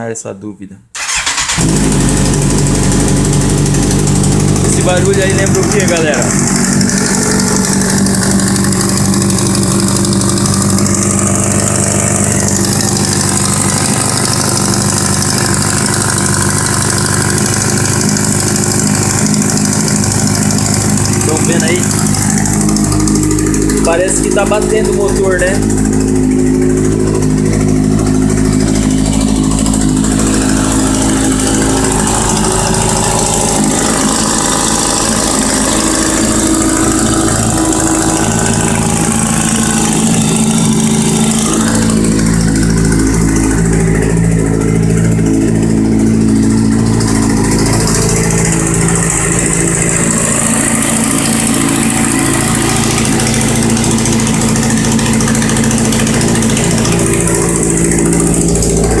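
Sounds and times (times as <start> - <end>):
engine knocking noise: 1.0 - 59.0
motorcycle engine idling: 1.0 - 59.0.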